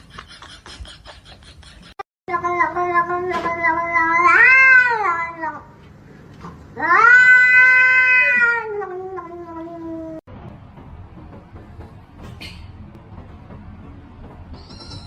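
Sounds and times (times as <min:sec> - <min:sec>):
cat yowling: 0:02.8 - 0:05.6, 0:06.8 - 0:10.2.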